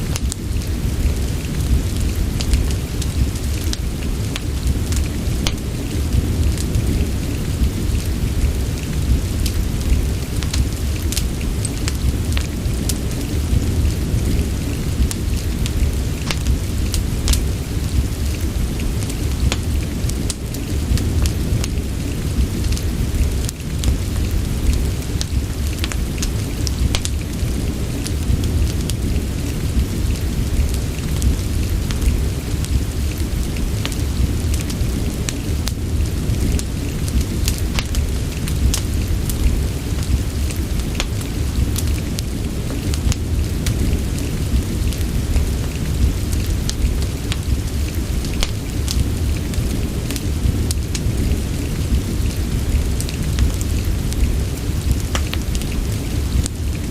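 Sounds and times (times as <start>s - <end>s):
steady rain: 0.0s - 56.9s
wood fire crackling: 0.0s - 56.9s.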